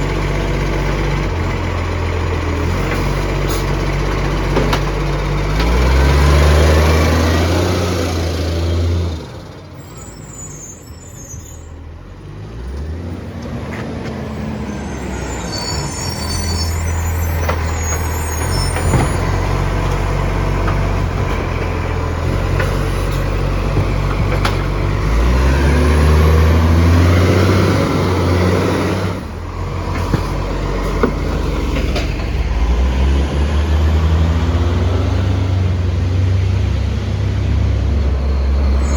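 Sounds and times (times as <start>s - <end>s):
garbage truck engine revving: 0.0s - 9.8s, 11.8s - 38.9s.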